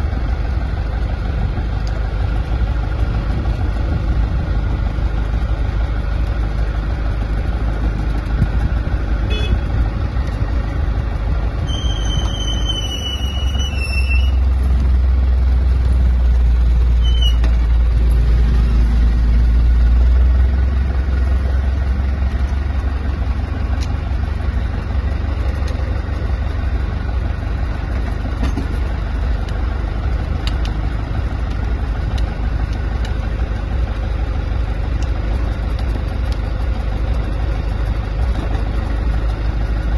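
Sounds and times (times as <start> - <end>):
vehicle engine idling: 0.0 - 39.9
high squeal: 11.6 - 14.6, 16.9 - 17.5
short squeaks: 11.6 - 14.6, 16.9 - 17.6.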